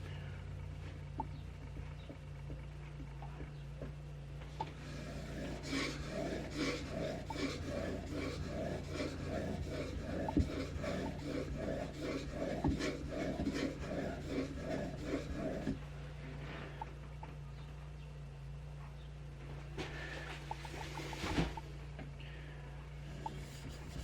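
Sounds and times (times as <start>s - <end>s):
blade scraping on whetstone: 4.7s - 15.8s.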